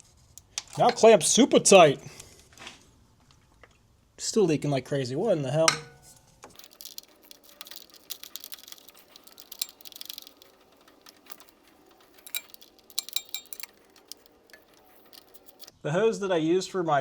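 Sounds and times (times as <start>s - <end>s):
light clicks and metallic clinks: 0.4s - 1.2s, 5.7s - 15.7s.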